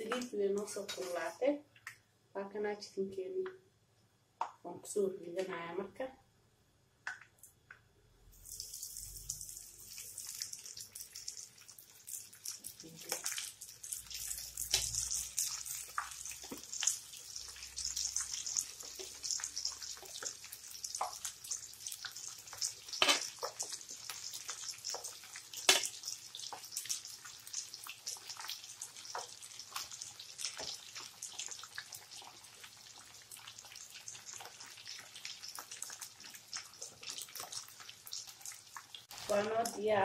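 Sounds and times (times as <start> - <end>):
chicken deep-frying in oil: 8.2 - 40.0.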